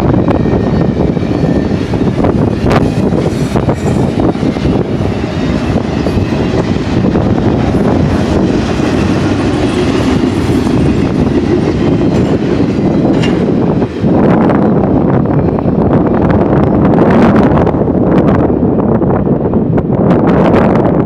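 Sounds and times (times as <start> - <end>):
train wheels clattering on rails: 0.0 - 15.7.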